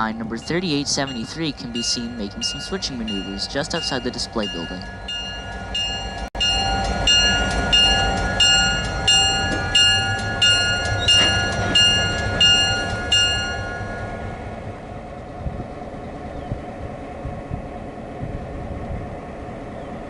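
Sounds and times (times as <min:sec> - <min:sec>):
locomotive bell ringing: 0:00.0 - 0:14.8
diesel engine rumble: 0:00.0 - 0:20.0.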